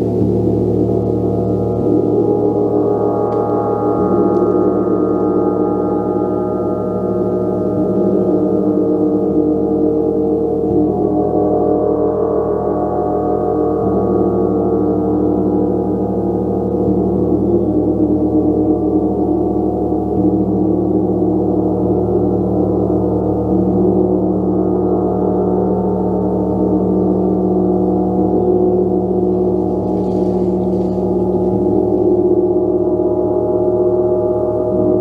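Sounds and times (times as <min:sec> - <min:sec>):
gong ringing: 0:29.3 - 0:32.4
soft mallet strokes: 0:29.4 - 0:32.4.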